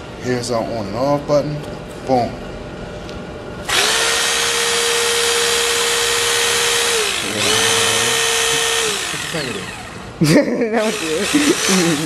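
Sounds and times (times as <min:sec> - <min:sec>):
electric motor whine: 0:03.6 - 0:10.2, 0:10.8 - 0:12.0.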